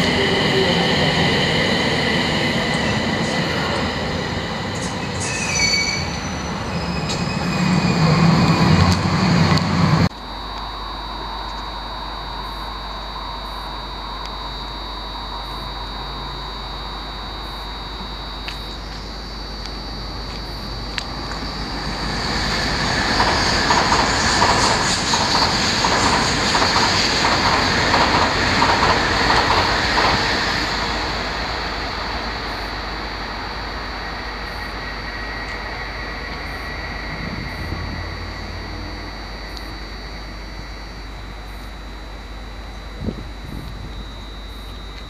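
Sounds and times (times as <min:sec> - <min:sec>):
train wheels clattering on rails: 0:00.0 - 0:10.1, 0:22.0 - 0:31.4.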